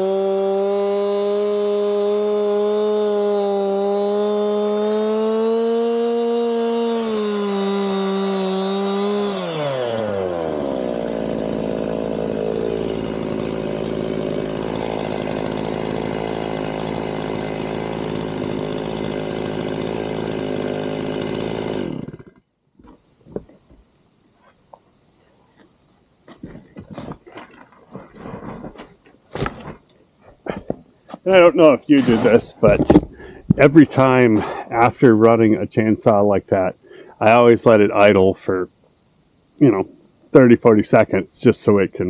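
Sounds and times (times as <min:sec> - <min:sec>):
chainsaw engine running: 0:00.0 - 0:23.0, 0:30.5 - 0:35.1.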